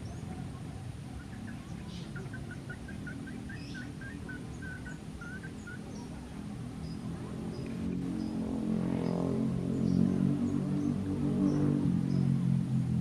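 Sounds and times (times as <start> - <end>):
bird chirping: 0.0 - 12.8.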